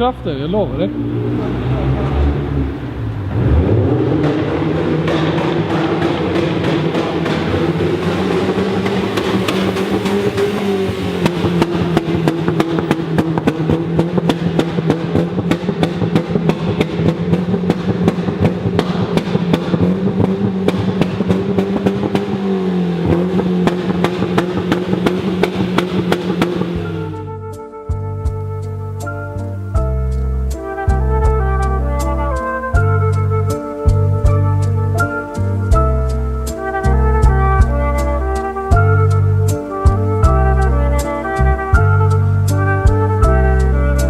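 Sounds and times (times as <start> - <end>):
exhaust crackling pops: 0.0 - 27.6
car engine at high revs: 0.3 - 27.4.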